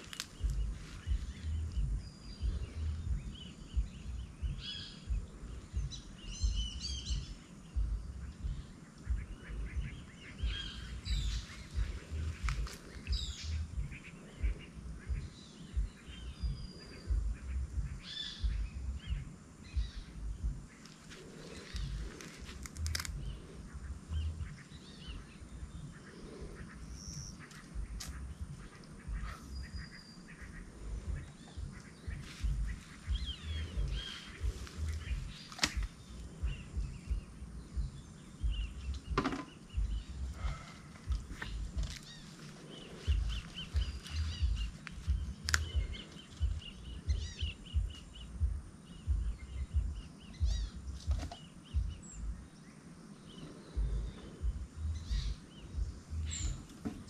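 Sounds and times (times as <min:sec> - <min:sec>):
birds chirping and trilling: 0:00.0 - 0:57.0
uneven low rumble: 0:00.0 - 0:57.0.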